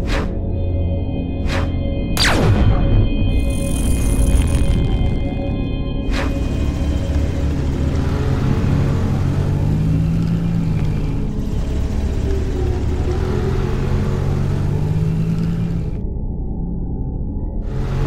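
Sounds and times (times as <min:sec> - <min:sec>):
monster truck engine rumbling: 0:06.2 - 0:16.1.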